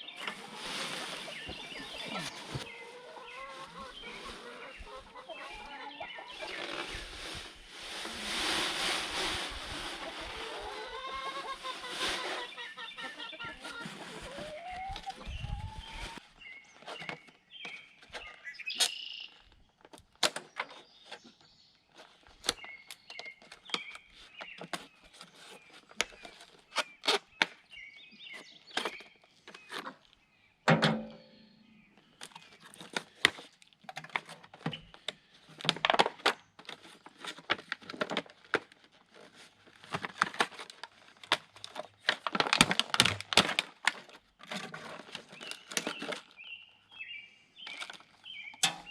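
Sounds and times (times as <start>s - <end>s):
chickens clucking: 0.0s - 16.2s.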